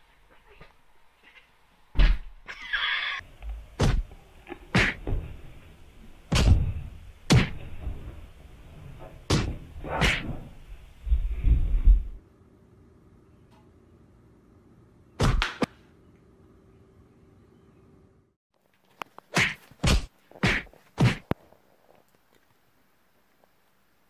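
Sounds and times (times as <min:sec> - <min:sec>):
sharp thumps and knocks: 0:06.3 - 0:08.2, 0:09.0 - 0:10.5.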